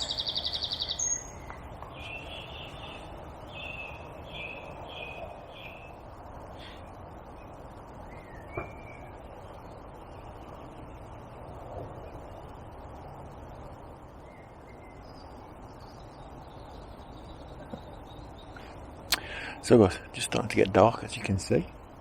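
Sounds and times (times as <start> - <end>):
low outdoor background noise: 0.0 - 22.0
faint bird calls: 14.2 - 19.6.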